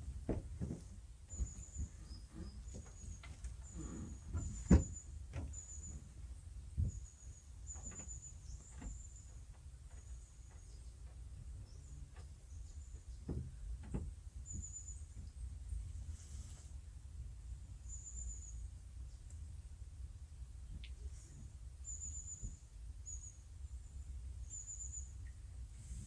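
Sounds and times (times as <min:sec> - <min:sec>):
rigging knocks and clicks: 0:00.0 - 0:06.2, 0:07.7 - 0:15.4.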